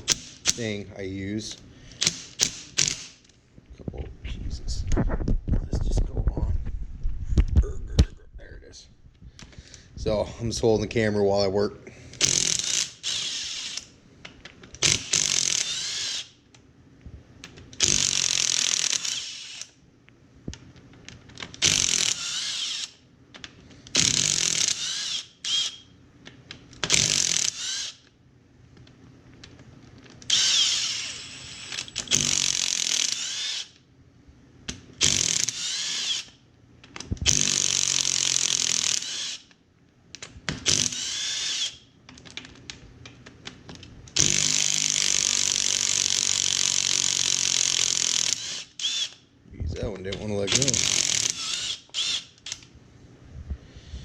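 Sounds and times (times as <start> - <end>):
power drill whining: 12.2 - 13.9, 14.8 - 16.3, 17.8 - 19.8, 21.6 - 23.0, 24.0 - 25.8, 26.9 - 28.0, 30.3 - 33.8, 35.0 - 36.4, 37.3 - 39.5, 40.6 - 41.8, 44.2 - 49.2, 50.5 - 52.6.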